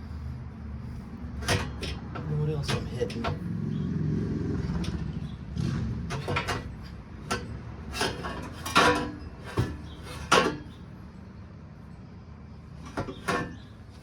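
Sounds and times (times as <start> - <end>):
exhaust header clanking against metal: 0.8 - 3.8, 4.6 - 10.9, 12.8 - 14.0.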